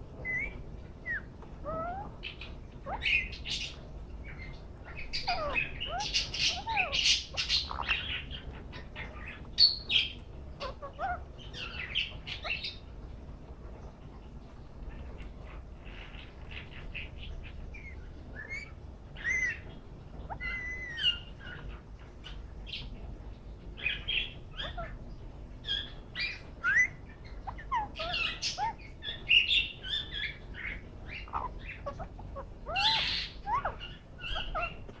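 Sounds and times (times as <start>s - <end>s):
parakeet chirping and whistling: 0.1s - 12.8s, 17.5s - 21.8s, 23.8s - 25.0s, 25.6s - 35.0s.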